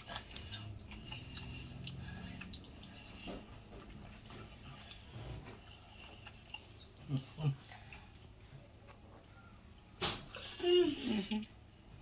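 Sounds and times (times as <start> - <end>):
low steady hum: 0.0 - 12.0
man chewing food: 0.0 - 12.0.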